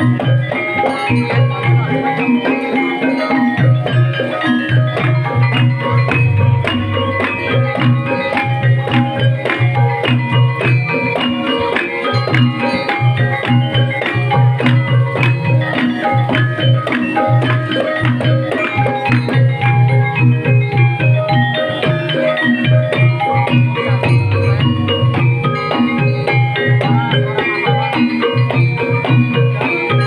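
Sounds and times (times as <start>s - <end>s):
tuned percussion interlocking notes: 0.0s - 30.0s
low drum beat: 4.9s - 9.2s, 24.0s - 27.0s.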